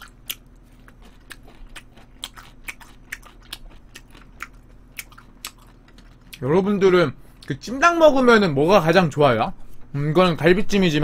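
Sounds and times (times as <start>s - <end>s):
person chewing and smacking: 0.0s - 6.4s.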